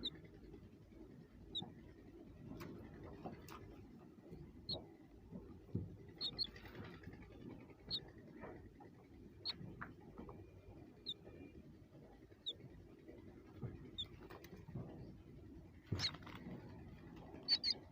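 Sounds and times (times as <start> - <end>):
small bird chirping: 1.5 - 1.7, 6.1 - 8.1, 9.4 - 9.7, 10.9 - 11.6, 12.4 - 12.7, 13.8 - 14.4, 15.8 - 16.4, 17.3 - 17.9.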